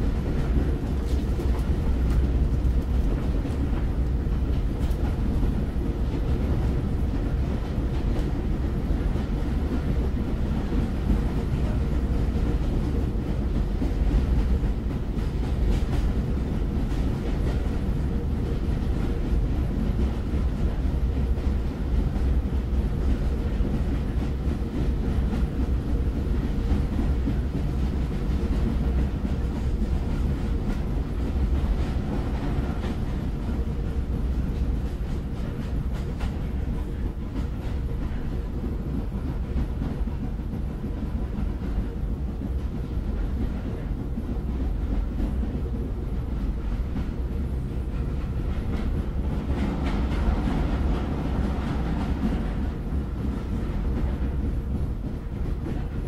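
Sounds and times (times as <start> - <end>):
train rumbling: 0.0 - 56.0.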